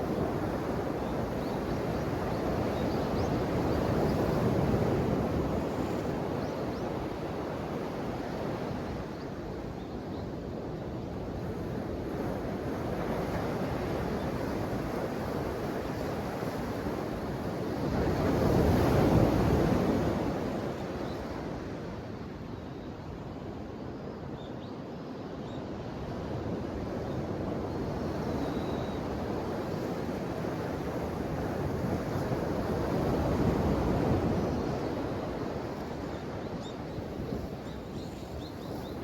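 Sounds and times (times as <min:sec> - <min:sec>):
ocean waves washing ashore: 0:10.4 - 0:22.5, 0:25.9 - 0:39.0.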